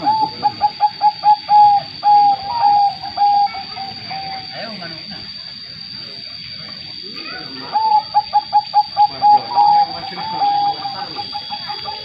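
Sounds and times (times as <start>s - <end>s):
dove cooing: 0.0s - 4.8s, 7.2s - 12.0s.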